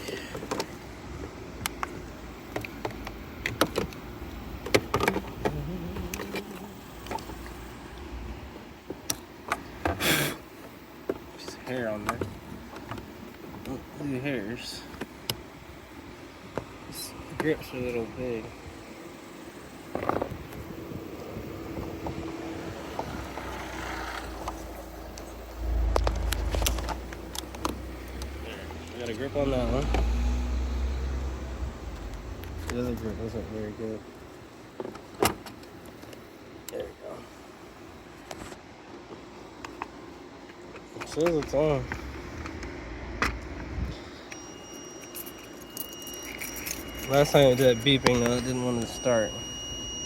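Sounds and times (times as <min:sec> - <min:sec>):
passing motor vehicle rumble: 0:20.7 - 0:34.3.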